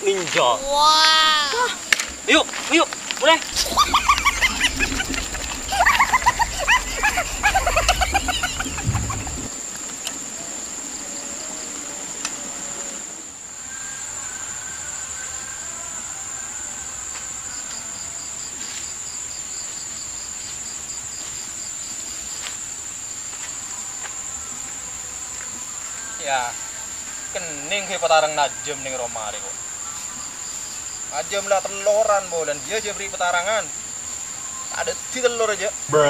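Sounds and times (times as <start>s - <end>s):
insects chirring: 0.0s - 36.0s
pulsing insect chirp: 0.0s - 36.0s
cackling call: 3.5s - 9.5s.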